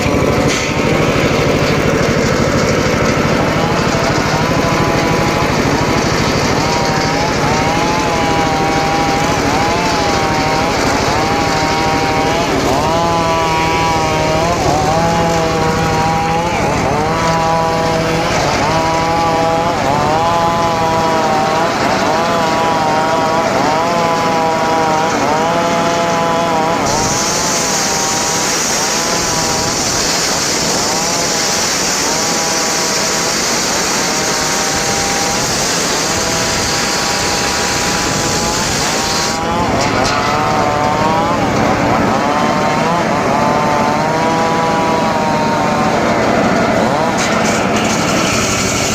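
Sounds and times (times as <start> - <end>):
circular saw cutting wood: 0.0 - 48.9
high hiss: 26.9 - 39.4.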